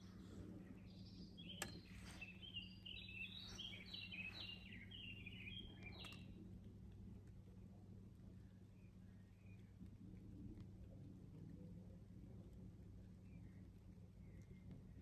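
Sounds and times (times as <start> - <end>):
songbird chirping: 0.0 - 6.4, 13.0 - 15.0
steady low hum: 0.0 - 15.0
sharp click: 1.6 - 1.9.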